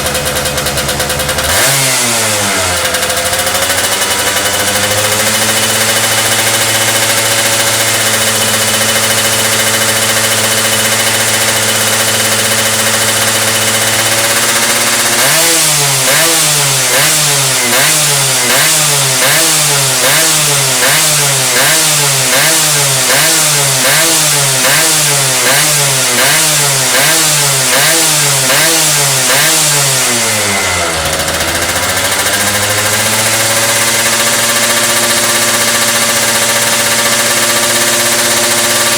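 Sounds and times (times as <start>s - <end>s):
motorcycle engine idling: 0.0s - 38.9s
motorcycle engine revving: 0.0s - 38.9s.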